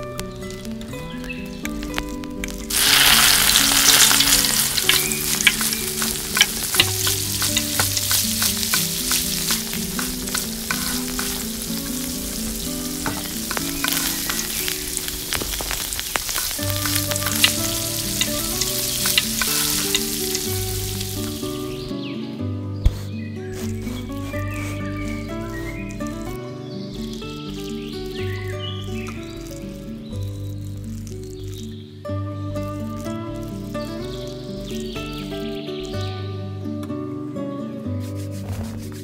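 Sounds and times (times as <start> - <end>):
crackling pops: 0.0 - 21.9, 22.8 - 31.8, 32.6 - 36.1
soft background music: 0.0 - 39.0
cutlets sizzling in oil: 1.4 - 21.9, 27.0 - 29.8.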